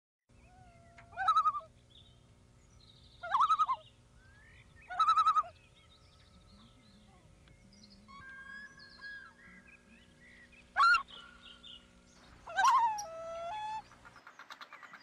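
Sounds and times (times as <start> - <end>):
large bird calling loudly: 0.3 - 1.8, 3.1 - 5.7, 7.9 - 14.2
faint bird chirps: 0.3 - 15.0.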